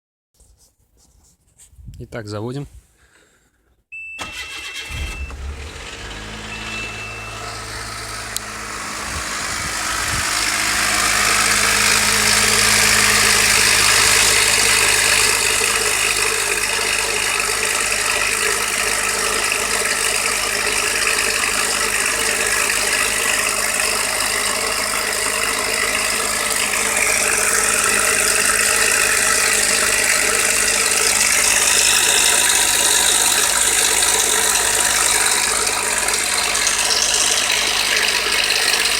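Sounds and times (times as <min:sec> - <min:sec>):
car engine idling: 0:04.2 - 0:38.9
engine knocking rattle: 0:04.3 - 0:38.9.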